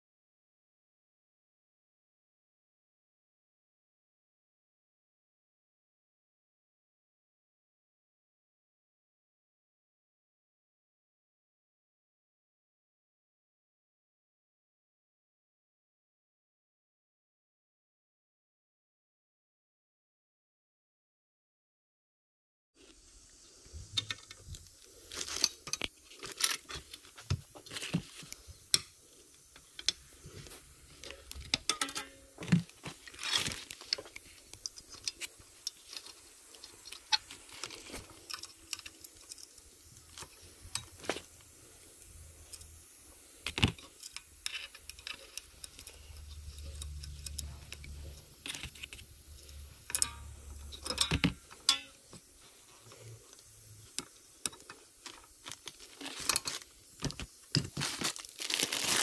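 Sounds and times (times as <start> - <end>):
metal parts and tools clinking: 24.0 - 41.4, 43.4 - 52.3, 53.9 - 59.0
low hum: 44.8 - 52.0.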